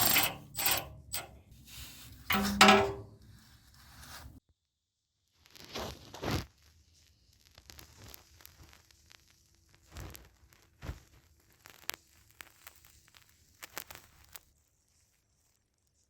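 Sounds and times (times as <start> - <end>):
hand tools and metal parts clicking: 0.0 - 1.4, 2.3 - 3.1.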